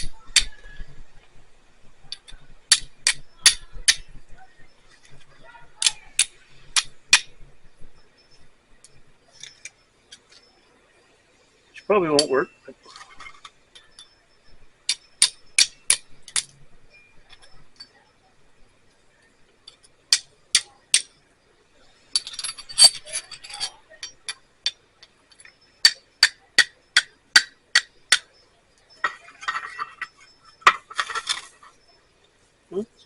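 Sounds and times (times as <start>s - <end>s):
flint and steel striking: 2.1s - 4.2s, 5.8s - 7.4s, 12.1s - 18.0s, 19.6s - 21.2s, 22.1s - 31.9s
rattling scrape: 29.0s - 31.9s.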